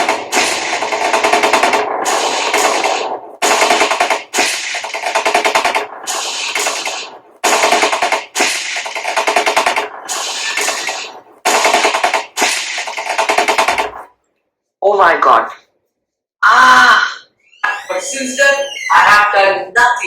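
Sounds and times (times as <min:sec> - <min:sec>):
dramatic music: 0:00.0 - 0:08.0
machine-gun fire: 0:00.0 - 0:14.1.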